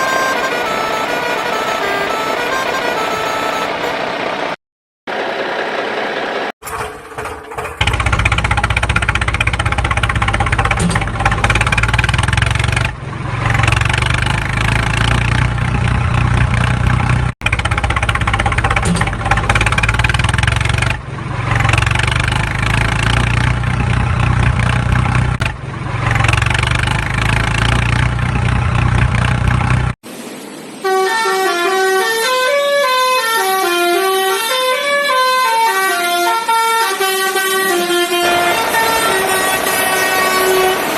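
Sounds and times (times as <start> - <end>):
horn-like honking: 0.0 - 4.2, 30.8 - 40.9
engine drone: 0.0 - 40.9.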